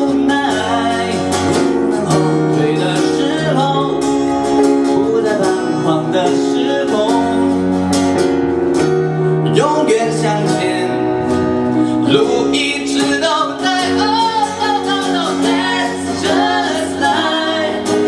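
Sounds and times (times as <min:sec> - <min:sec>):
bass line: 0:00.0 - 0:18.0
strummed acoustic guitar: 0:00.0 - 0:18.0.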